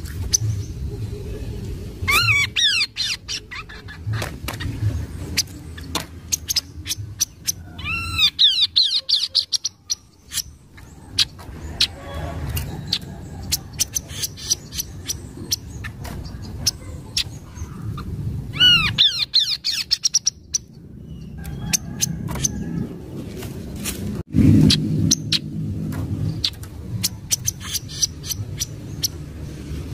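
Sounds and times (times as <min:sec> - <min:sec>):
low rumble: 0:00.0 - 0:08.3, 0:14.6 - 0:29.9
bird chirping: 0:00.0 - 0:23.3, 0:26.1 - 0:29.3.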